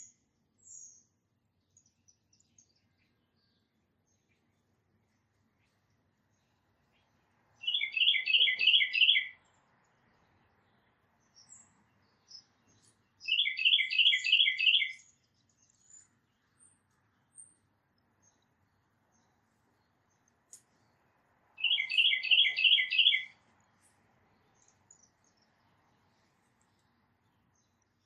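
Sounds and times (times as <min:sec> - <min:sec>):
faint high bird chips: 0:21.6 - 0:23.9.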